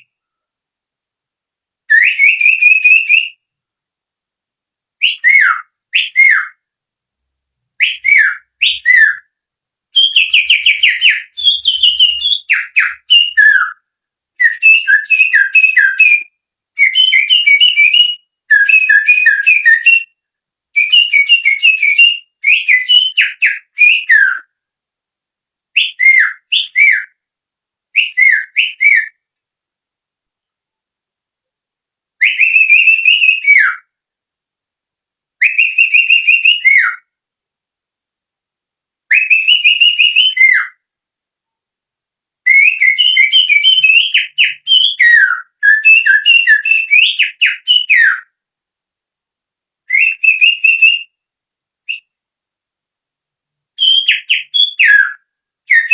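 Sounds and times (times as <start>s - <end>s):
finger whistling birdsong imitation: 0.0s - 0.5s, 1.8s - 3.6s, 5.0s - 6.7s, 7.8s - 24.6s, 25.7s - 27.2s, 27.9s - 29.3s, 32.2s - 34.0s, 35.4s - 37.2s, 39.1s - 40.8s, 42.4s - 48.4s, 49.8s - 51.2s, 51.8s - 52.2s, 53.8s - 55.9s.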